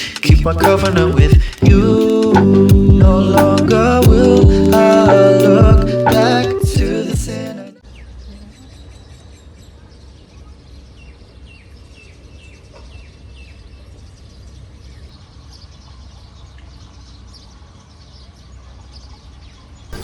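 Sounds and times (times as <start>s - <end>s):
steady low rumble: 0.2s - 6.1s.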